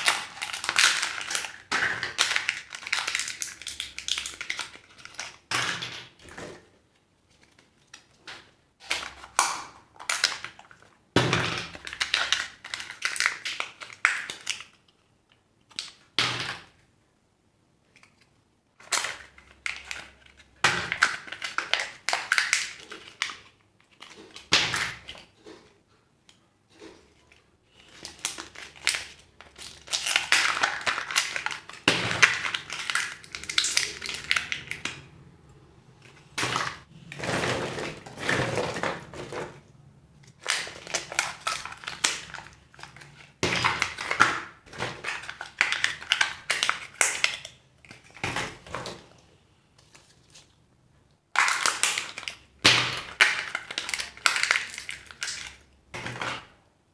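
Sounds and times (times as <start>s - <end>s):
wrappers crinkling and tearing: 0.0s - 5.4s, 26.7s - 34.8s, 40.3s - 44.4s.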